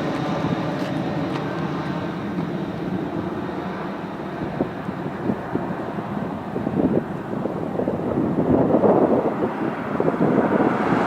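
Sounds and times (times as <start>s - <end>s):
jet engines rumbling: 0.0s - 11.0s
wind gusts on microphone: 0.0s - 11.0s.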